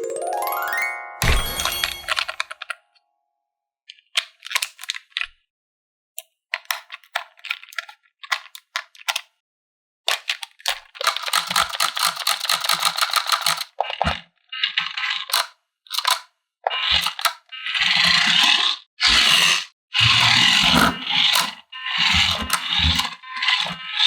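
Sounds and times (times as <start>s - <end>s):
plastic toy pieces rattling: 11.0s - 13.7s.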